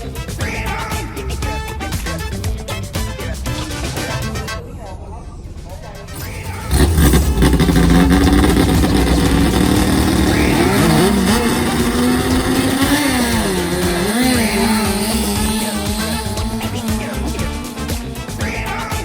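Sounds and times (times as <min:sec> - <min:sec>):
boat engines revving hard: 0:06.2 - 0:19.0.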